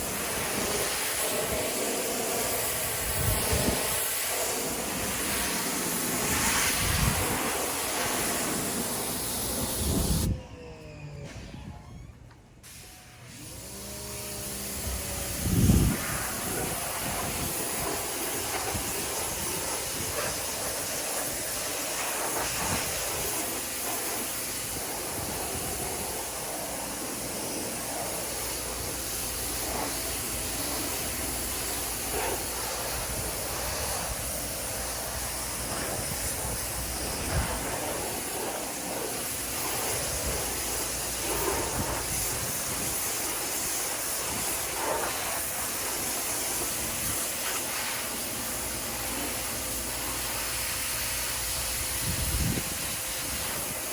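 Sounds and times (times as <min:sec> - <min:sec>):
water spraying on siding: 0:00.0 - 0:10.3, 0:12.6 - 0:53.9.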